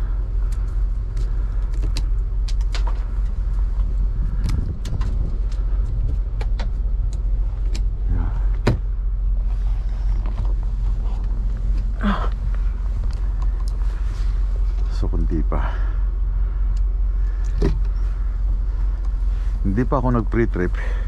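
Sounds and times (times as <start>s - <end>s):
truck engine idling: 0.0s - 21.0s
sharp clicks and knocks of ice: 0.4s - 3.4s.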